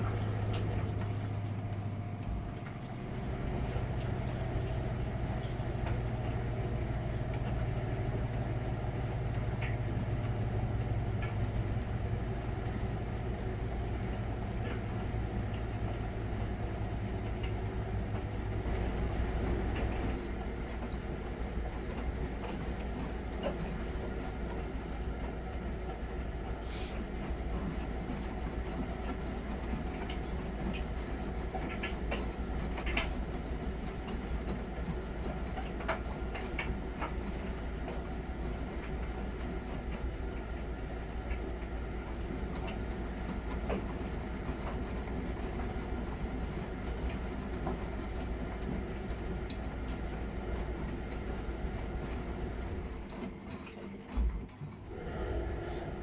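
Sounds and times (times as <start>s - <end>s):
washing machine rumbling: 0.0s - 56.0s.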